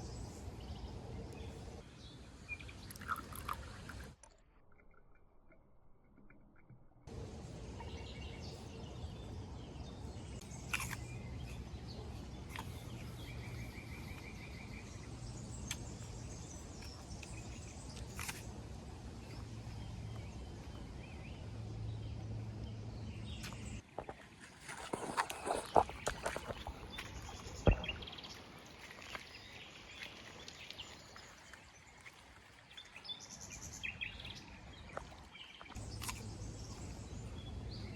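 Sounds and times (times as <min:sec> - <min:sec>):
steady low rumble: 0:07.1 - 0:23.8
birds chirping: 0:07.1 - 0:37.9.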